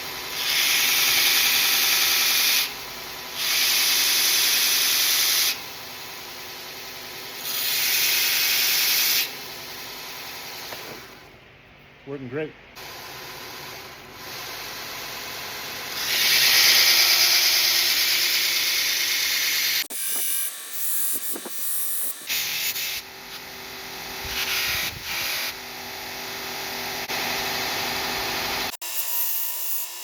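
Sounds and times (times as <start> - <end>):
belt grinder grinding steel blade: 15.9 - 23.5.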